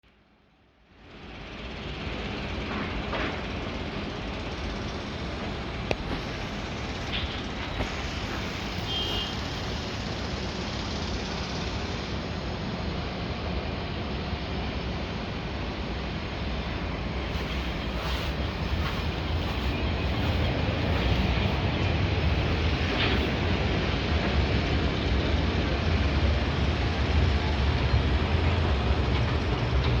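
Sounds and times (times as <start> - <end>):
outdoor background rumble: 0.2 - 30.0
city road traffic: 0.9 - 30.0
even hiss: 3.5 - 12.8, 13.9 - 23.9.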